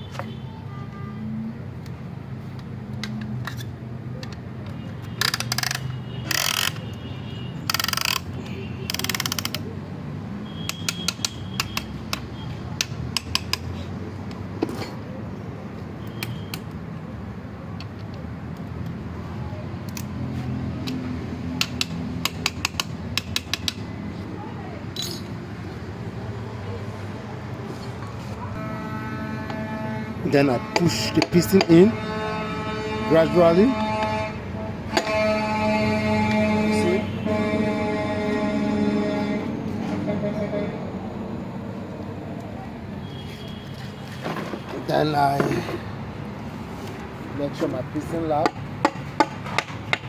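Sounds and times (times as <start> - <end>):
ratchet clicking: 5.1 - 6.9, 7.6 - 9.6, 12.8 - 13.7, 21.6 - 23.8.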